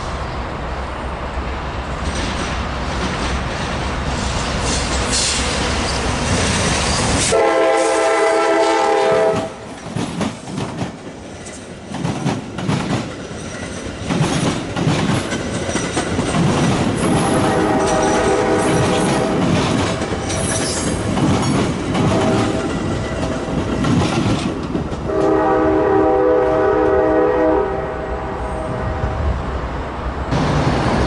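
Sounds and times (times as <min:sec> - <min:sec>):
train wheels clicking over rail joints: 0:02.0 - 0:07.4, 0:08.9 - 0:25.4
train horn chord: 0:07.2 - 0:09.6, 0:17.1 - 0:19.4, 0:25.1 - 0:29.2.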